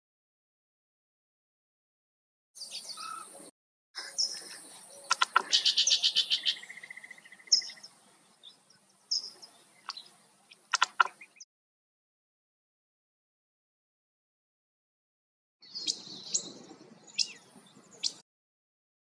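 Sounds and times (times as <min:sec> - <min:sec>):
songbirds chirping: 0:02.6 - 0:11.5, 0:15.6 - 0:18.2.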